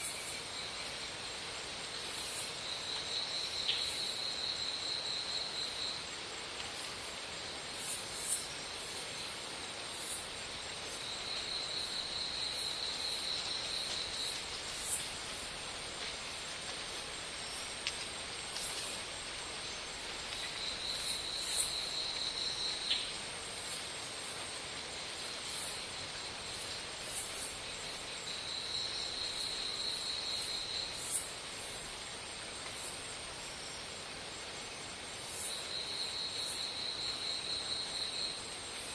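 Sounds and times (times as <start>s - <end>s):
insects whining: 0.0s - 38.9s
very high insect chirps: 1.9s - 15.6s, 17.3s - 24.3s.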